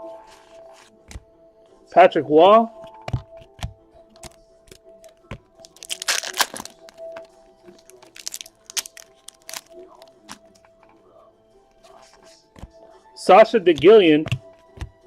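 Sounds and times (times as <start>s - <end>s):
faint background music: 0.0s - 15.0s
foil wrappers crinkling: 5.0s - 10.6s
wrapper ripping: 5.6s - 10.4s.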